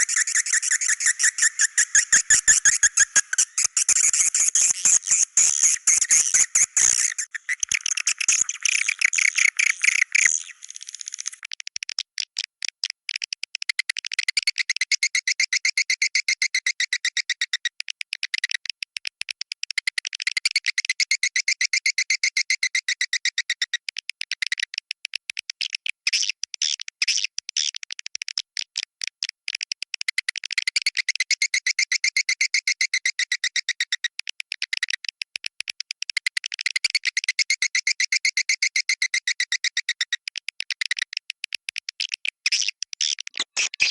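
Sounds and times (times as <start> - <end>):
swiftlet high chirps: 0.0 - 10.0.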